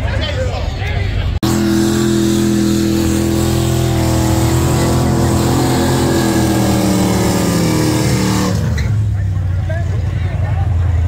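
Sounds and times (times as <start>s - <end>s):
car engine at high revs: 1.4s - 9.4s.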